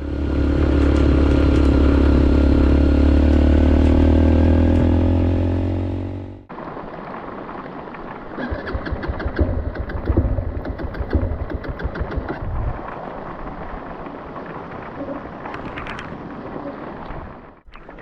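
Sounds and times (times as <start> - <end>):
motorcycle engine: 0.0 - 6.5
wind noise: 6.5 - 18.0
knocks and rattles: 8.7 - 12.5.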